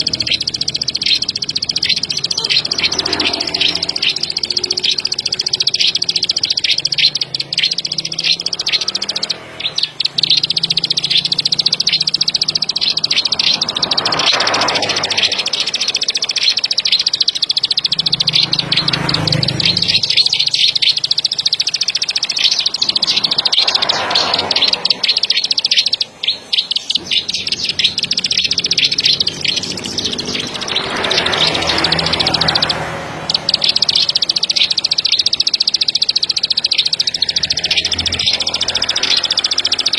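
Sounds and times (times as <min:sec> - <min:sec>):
bird singing clicking trill: 0:00.0 - 0:39.9.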